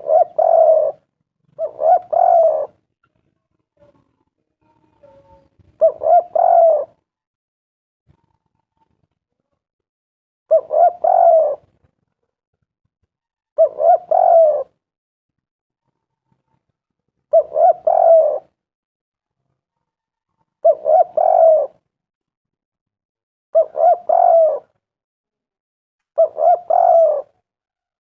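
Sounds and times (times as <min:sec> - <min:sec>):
dove cooing: 0:00.0 - 0:02.9, 0:05.0 - 0:07.0, 0:10.5 - 0:11.7, 0:13.6 - 0:14.8, 0:17.3 - 0:18.6, 0:20.6 - 0:21.9, 0:23.5 - 0:24.8, 0:26.2 - 0:27.4.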